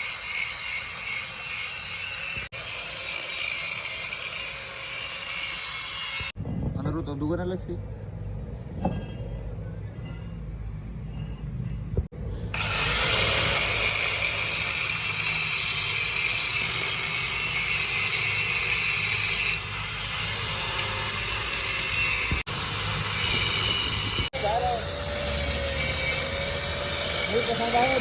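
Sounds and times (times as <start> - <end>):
power tool grinding metal: 0.0 - 6.4, 12.6 - 28.0.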